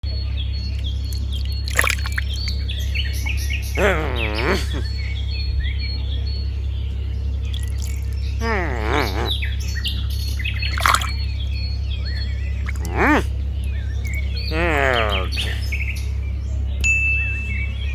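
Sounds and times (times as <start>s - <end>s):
birds chirping: 0.0s - 17.9s
low hum: 0.0s - 17.9s
bird squawking calls: 1.0s - 6.2s, 7.4s - 16.5s.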